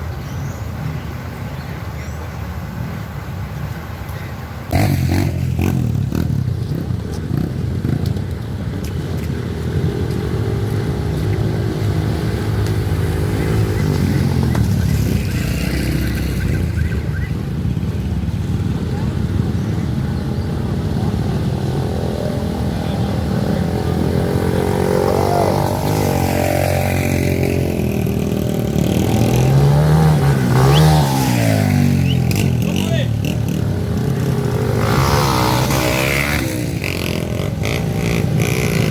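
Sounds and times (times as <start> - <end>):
motorcycle engines revving: 0.0 - 38.9
people's voices: 18.5 - 27.8.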